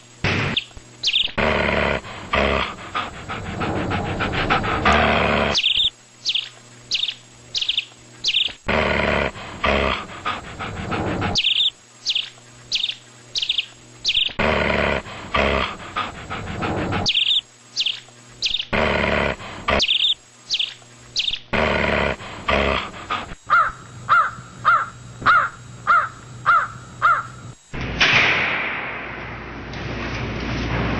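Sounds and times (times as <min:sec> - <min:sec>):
dog panting: 0:01.4 - 0:05.8, 0:08.7 - 0:11.7, 0:14.4 - 0:17.9, 0:18.8 - 0:20.2, 0:21.6 - 0:27.6
high bird-like chirps: 0:05.6 - 0:08.6, 0:11.4 - 0:14.4, 0:17.1 - 0:18.7, 0:19.8 - 0:21.4.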